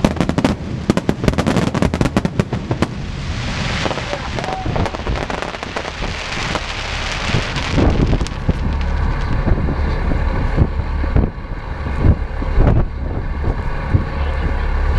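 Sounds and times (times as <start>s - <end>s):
dense crackling hiss: 0.0s - 11.4s
boat engine rumbling: 0.0s - 14.9s
wind buffeting microphone: 0.0s - 14.9s.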